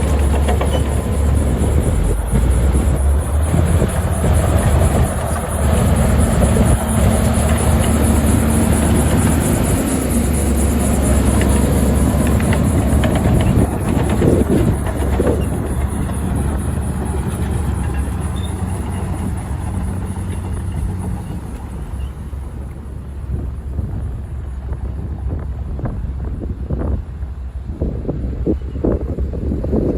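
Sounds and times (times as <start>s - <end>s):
heavy diesel machine engine drone: 0.0s - 29.9s.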